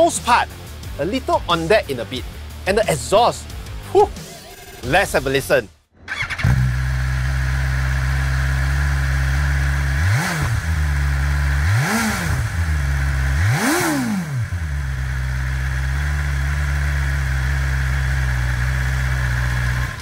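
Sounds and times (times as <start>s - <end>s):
motorcycle engine idling and revving: 0.0s - 5.1s, 6.0s - 20.0s.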